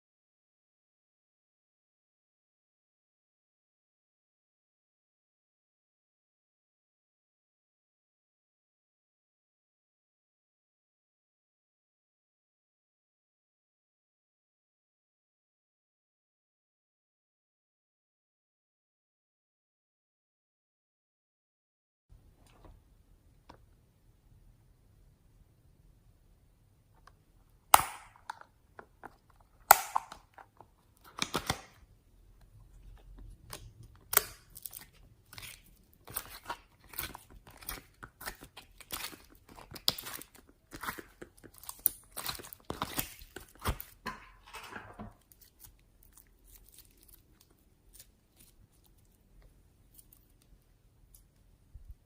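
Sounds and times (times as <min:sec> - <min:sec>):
slime clicking and popping: 0:27.8 - 0:28.4, 0:29.6 - 0:30.4.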